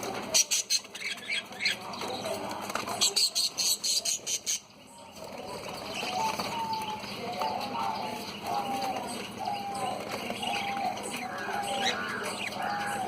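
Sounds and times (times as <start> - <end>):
budgerigars chirping: 6.0 - 13.0.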